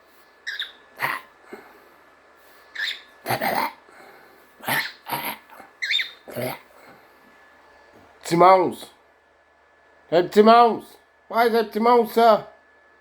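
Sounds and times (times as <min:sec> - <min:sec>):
cockatiel hissing and calling: 0:00.0 - 0:01.6, 0:02.5 - 0:03.8, 0:04.6 - 0:06.6.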